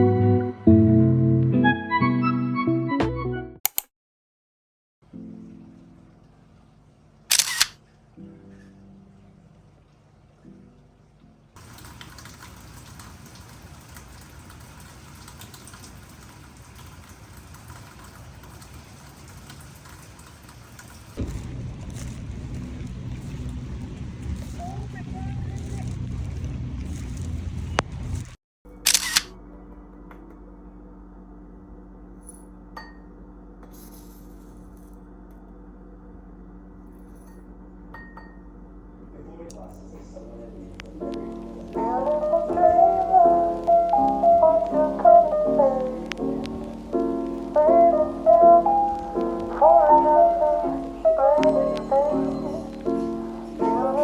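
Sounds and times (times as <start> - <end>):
rain patter: 9.0 - 28.4, 40.5 - 54.0
low hum: 21.2 - 47.7.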